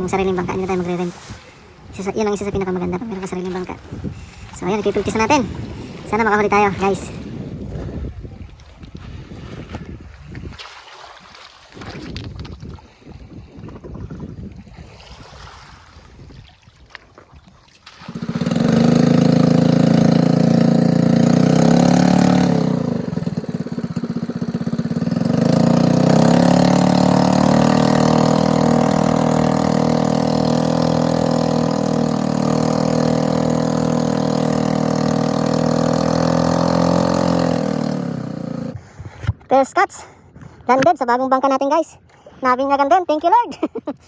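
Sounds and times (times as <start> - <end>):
small boat engine running: 0.0 - 10.4, 17.8 - 39.0.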